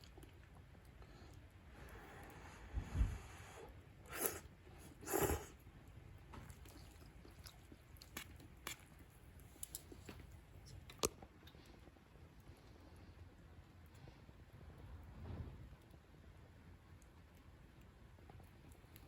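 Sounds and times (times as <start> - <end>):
faint chewing clicks: 0.0 - 2.7, 4.1 - 15.1, 15.8 - 19.0
bites or slurps: 4.0 - 5.6.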